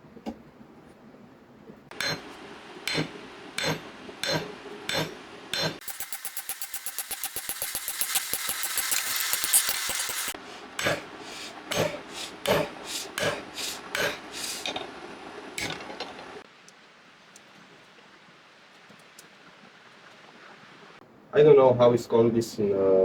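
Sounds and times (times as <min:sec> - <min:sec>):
fast scraping on metal: 0:03.6 - 0:14.8.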